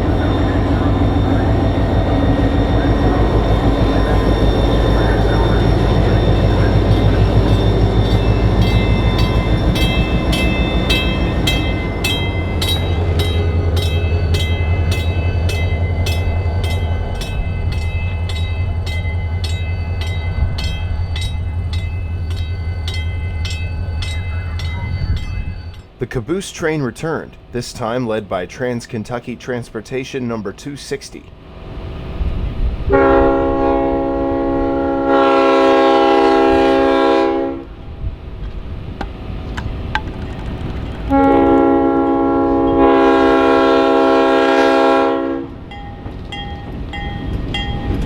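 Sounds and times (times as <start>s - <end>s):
locomotive engine low hum: 0.0s - 48.0s
wheels clicking over rail joints: 38.4s - 41.7s.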